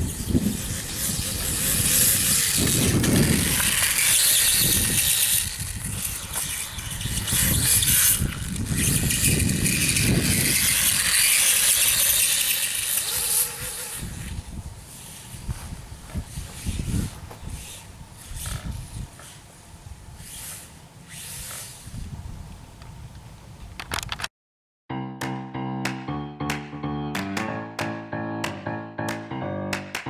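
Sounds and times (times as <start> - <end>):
electric motor whine: 0.0 - 22.2.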